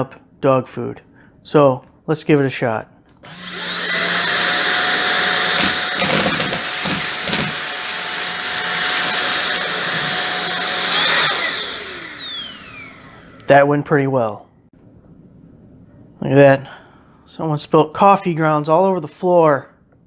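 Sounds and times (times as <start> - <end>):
vacuum motor whining: 3.2 - 13.5.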